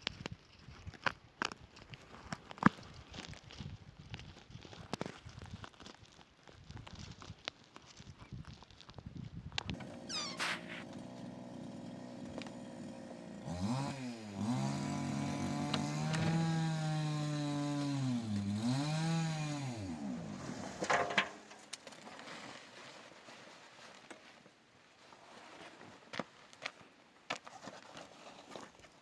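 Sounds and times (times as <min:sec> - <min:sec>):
small engine idling and revving: 0:09.7 - 0:21.6.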